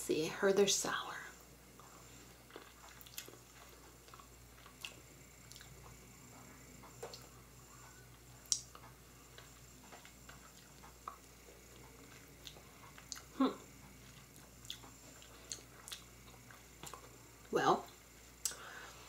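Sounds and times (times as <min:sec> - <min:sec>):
wet mouth clicks and smacks: 0:08.5 - 0:08.8.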